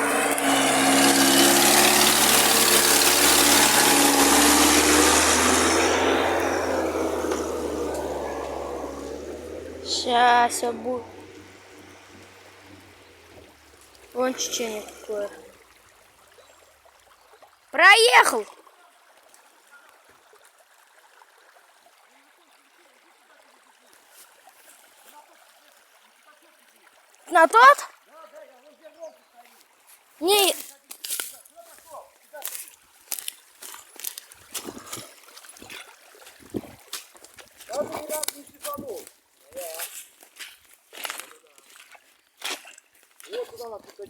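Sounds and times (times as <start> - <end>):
van engine running hard: 0.0 - 15.4
faint trickling water: 6.8 - 44.0.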